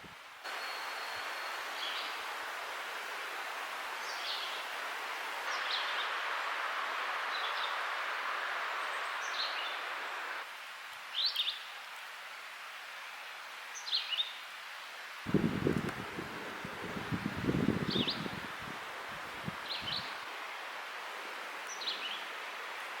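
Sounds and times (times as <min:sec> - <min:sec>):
steady outdoor hiss: 0:00.0 - 0:23.0
songbird chirping: 0:07.2 - 0:10.4.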